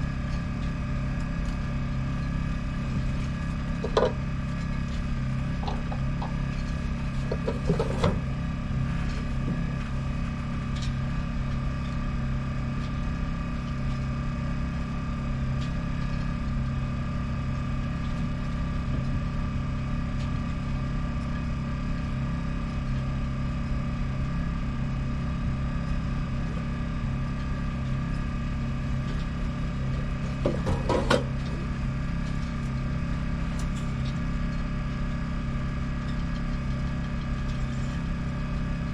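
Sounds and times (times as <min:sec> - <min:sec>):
boat engine idling: 0:00.1 - 0:11.7, 0:24.8 - 0:38.9.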